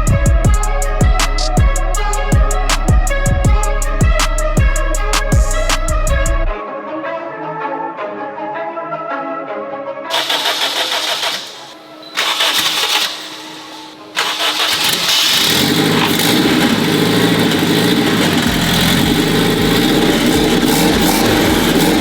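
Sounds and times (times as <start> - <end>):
engine running loudly: 10.1 - 22.0
engine starter cranking: 10.1 - 22.0.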